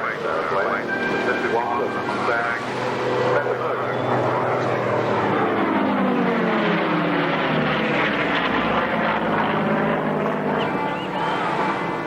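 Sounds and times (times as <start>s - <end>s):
propeller aircraft flying past: 0.0s - 12.0s.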